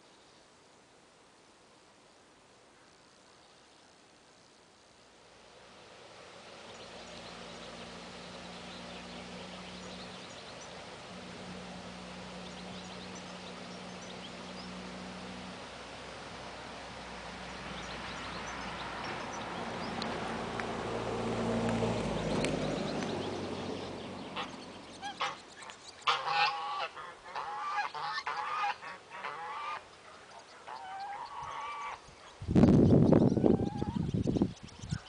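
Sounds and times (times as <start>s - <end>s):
geese honking: 24.3s - 29.9s, 30.5s - 32.0s, 33.4s - 34.0s.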